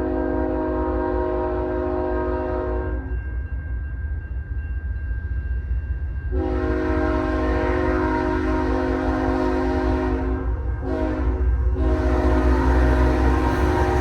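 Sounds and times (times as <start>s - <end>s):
locomotive air horn: 0.0s - 3.1s, 6.4s - 14.0s.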